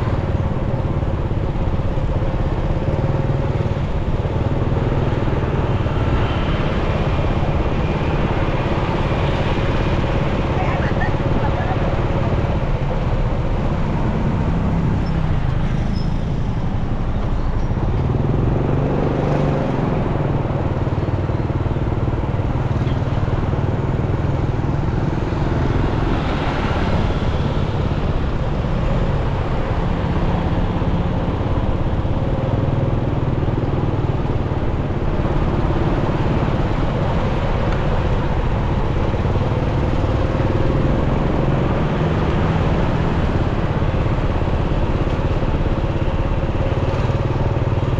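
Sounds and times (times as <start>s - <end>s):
road and wind noise: 0.0s - 47.9s
motorcycle engine running: 16.6s - 47.9s.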